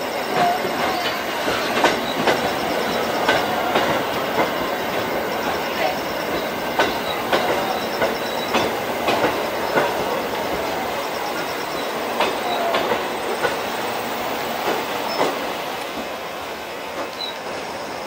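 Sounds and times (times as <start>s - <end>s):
high wheel squeals: 0.0s - 13.3s
train rumble: 0.0s - 18.0s
train wheels clacking over joints: 0.2s - 18.0s.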